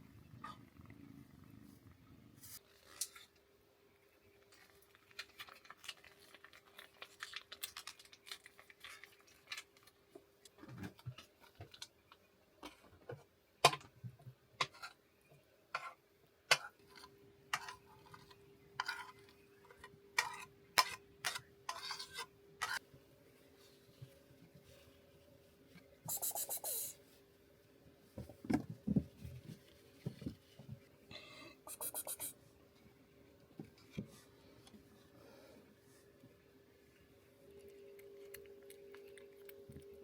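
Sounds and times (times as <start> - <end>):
faint steady hum: 15.0 - 40.0.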